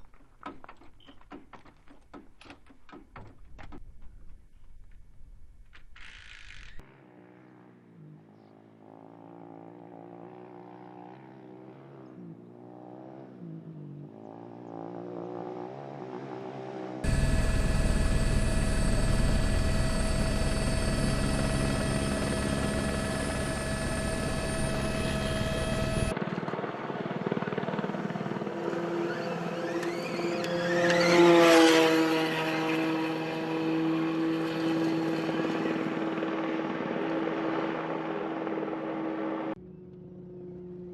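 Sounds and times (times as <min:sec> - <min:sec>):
engine revving: 0:14.2 - 0:26.1.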